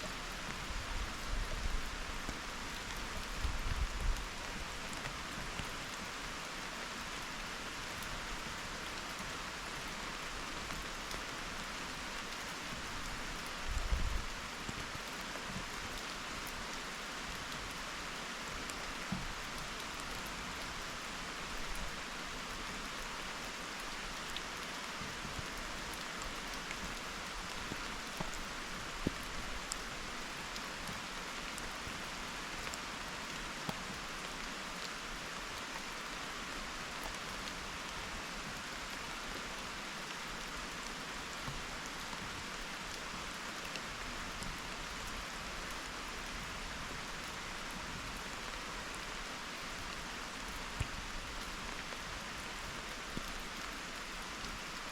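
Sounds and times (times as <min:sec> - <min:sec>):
steady rain hiss: 0:00.0 - 0:54.9.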